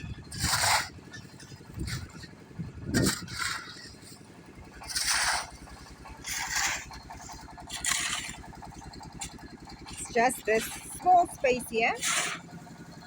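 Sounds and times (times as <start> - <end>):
engine idling: 0.0 - 13.0
scraping strokes: 4.8 - 8.4, 9.9 - 12.5.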